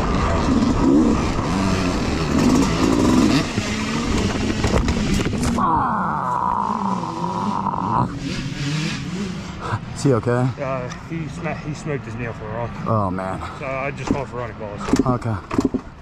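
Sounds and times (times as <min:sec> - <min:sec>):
high-pitched engine drone: 0:00.0 - 0:10.3
dirt bike engines revving: 0:00.0 - 0:16.0.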